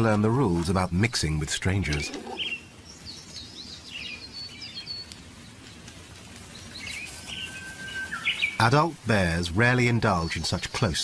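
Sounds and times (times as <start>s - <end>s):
birds chirping: 0.0s - 11.0s
faint outdoor hiss: 0.0s - 11.0s.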